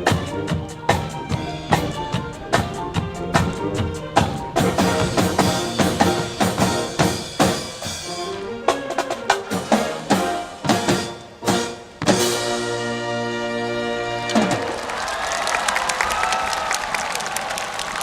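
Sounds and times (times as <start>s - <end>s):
band music: 0.0s - 15.0s
bass drum strikes: 0.1s - 7.8s.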